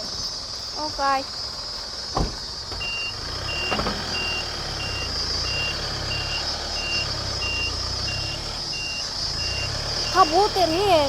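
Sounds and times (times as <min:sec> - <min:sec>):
truck engine running: 0:00.0 - 0:11.0
truck reversing alarm beeping: 0:02.2 - 0:11.0.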